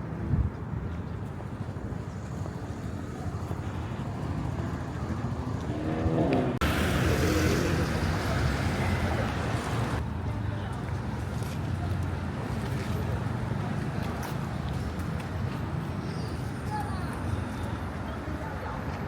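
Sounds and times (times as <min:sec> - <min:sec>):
city street traffic: 0:00.0 - 0:19.0
vehicle engine accelerating: 0:05.3 - 0:10.0.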